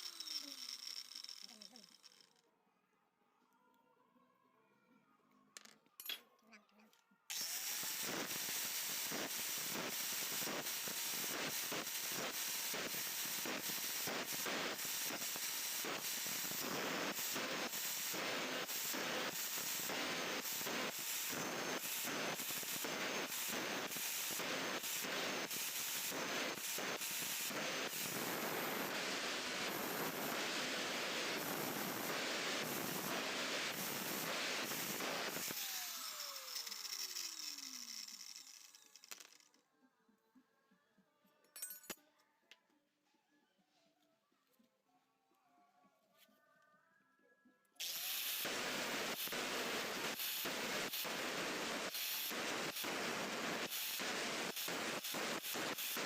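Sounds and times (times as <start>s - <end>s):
electric power tool working metal: 7.3s - 38.9s, 47.8s - 56.0s.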